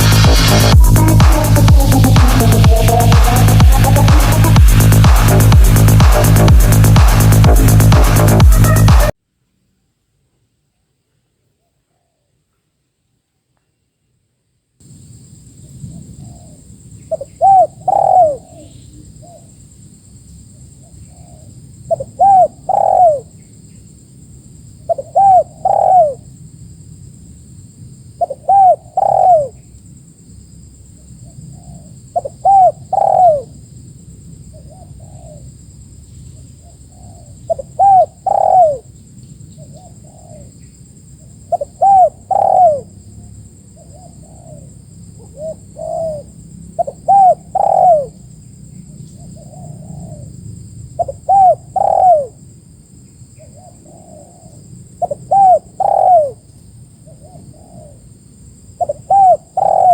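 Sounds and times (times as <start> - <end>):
doves cooing: 16.2 - 19.5, 21.1 - 23.3, 24.9 - 26.2, 28.2 - 29.6, 31.6 - 33.5, 37.0 - 38.9, 41.5 - 42.9, 43.9 - 48.2, 49.3 - 50.3, 51.0 - 52.4, 53.5 - 56.4, 58.8 - 59.9.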